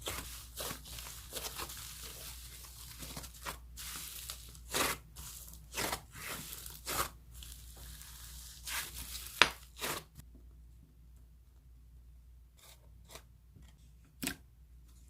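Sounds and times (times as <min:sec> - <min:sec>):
slime tearing and crackling: 0:00.0 - 0:10.2.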